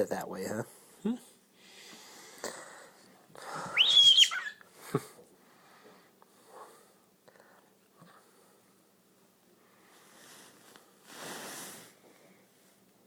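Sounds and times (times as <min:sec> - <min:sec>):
bird harsh call and whistle: 0:03.8 - 0:04.6.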